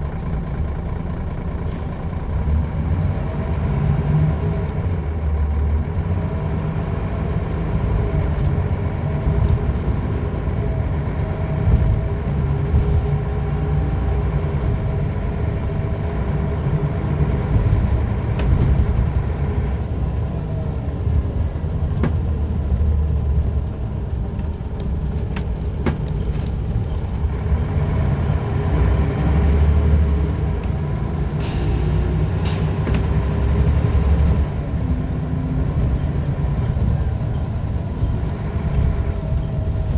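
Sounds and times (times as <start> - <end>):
bus engine with whine: 0.0 - 39.9
rattles and knocks: 24.3 - 27.3
hiss of air: 31.4 - 32.8.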